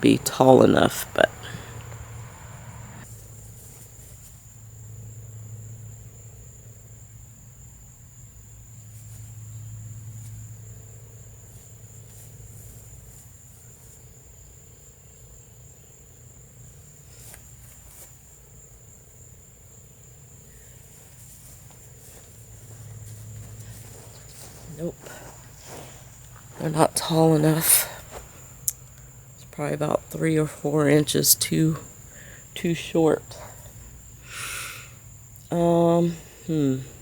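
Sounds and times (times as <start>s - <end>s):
steady low hum: 0.0s - 3.1s, 19.6s - 37.0s
insects trilling: 0.0s - 37.0s.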